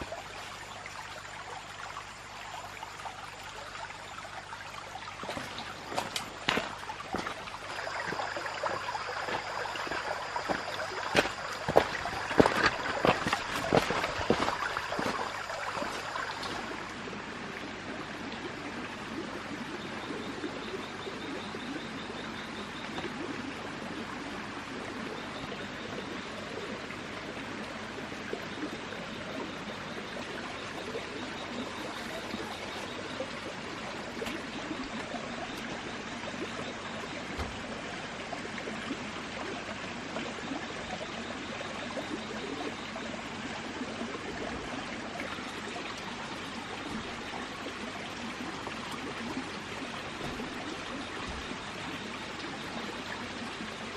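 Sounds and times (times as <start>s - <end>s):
stream water running: 0.0s - 53.9s
sharp splashes: 5.2s - 16.8s.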